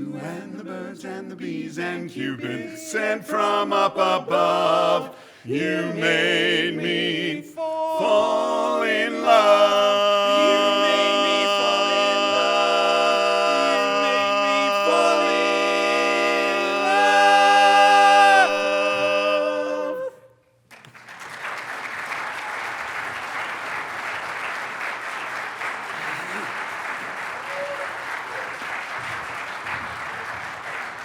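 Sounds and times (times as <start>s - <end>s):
barbershop quartet singing a cappella: 0.0s - 20.4s
audience applause: 20.7s - 31.0s.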